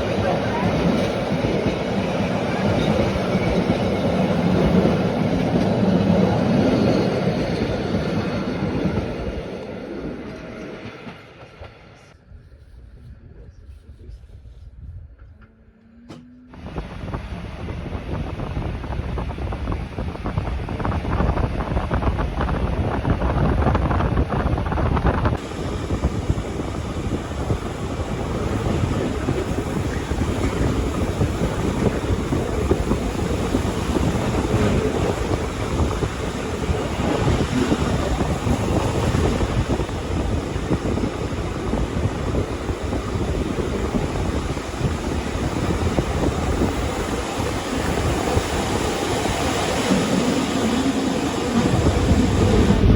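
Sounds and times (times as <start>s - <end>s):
train wheels rumbling on rail: 0.0s - 52.9s
wind buffeting microphone: 12.2s - 15.4s, 16.5s - 52.9s.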